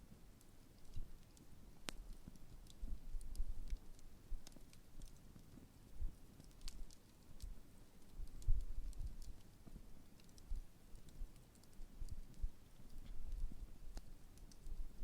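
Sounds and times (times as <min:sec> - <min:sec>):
campfire crackling and popping: 0:00.0 - 0:15.0
fire low rumble: 0:00.1 - 0:15.0.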